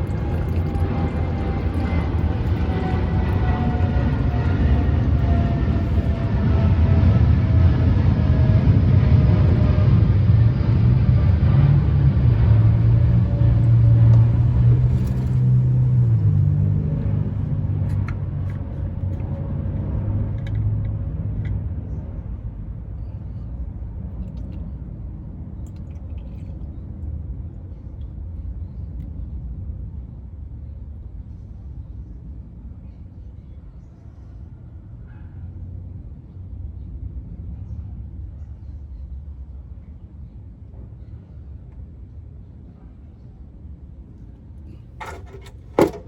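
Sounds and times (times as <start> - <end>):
vehicle engine running: 0.0 - 24.8, 44.6 - 46.0.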